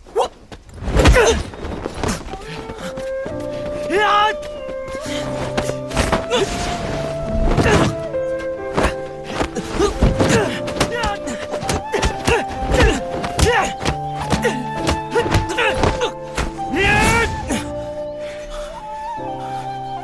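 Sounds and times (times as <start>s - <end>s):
people grunting and crying out: 0.0s - 3.2s, 5.0s - 19.0s
background music sustained tones: 1.4s - 20.0s
thumps and knocks of blows: 8.8s - 16.6s.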